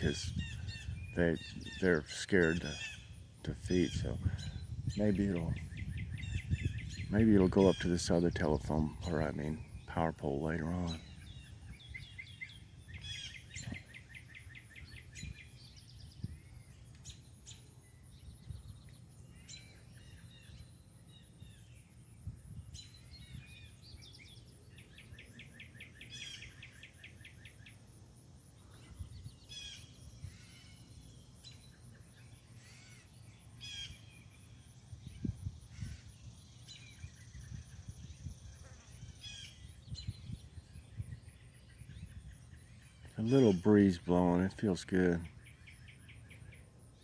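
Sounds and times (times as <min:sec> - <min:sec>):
bird fast trill: 0:00.0 - 0:10.1, 0:10.7 - 0:21.8
small birds chirping: 0:00.0 - 0:47.0.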